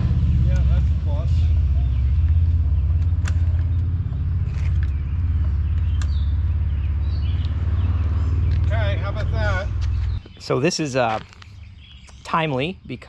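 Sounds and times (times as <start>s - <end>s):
car engine low rumble: 0.0s - 12.1s.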